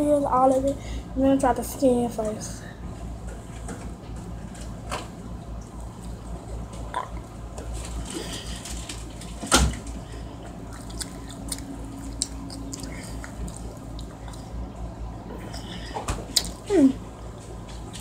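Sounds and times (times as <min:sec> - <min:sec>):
low hum: 0:00.0 - 0:18.0
chewing and wet mouth sounds: 0:05.6 - 0:14.7, 0:15.4 - 0:16.8.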